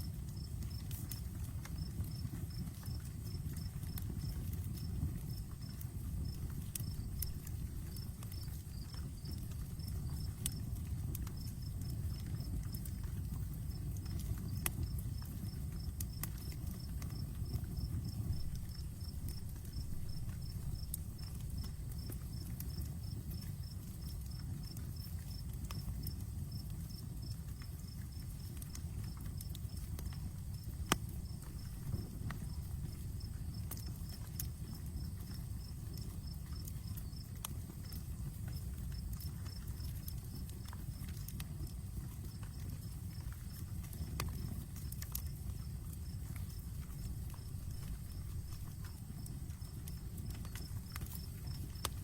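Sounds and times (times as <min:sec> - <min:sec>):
campfire flames rushing: 0:00.0 - 0:52.0
fire crackles and pops: 0:00.0 - 0:52.0
insect chirping: 0:06.2 - 0:10.6, 0:11.4 - 0:12.5, 0:14.5 - 0:23.5, 0:29.1 - 0:38.6, 0:45.6 - 0:51.9.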